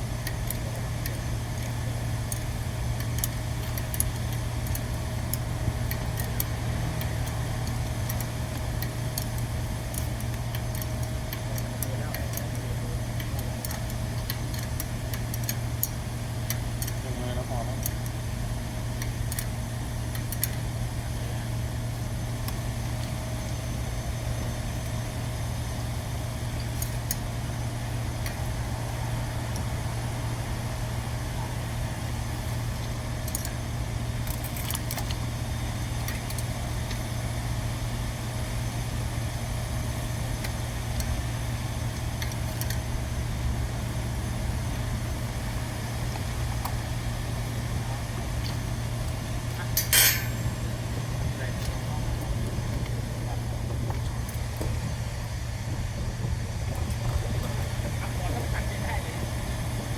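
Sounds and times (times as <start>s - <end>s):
low mechanical hum: 0.0s - 59.9s
light metallic clicks: 49.8s - 50.6s.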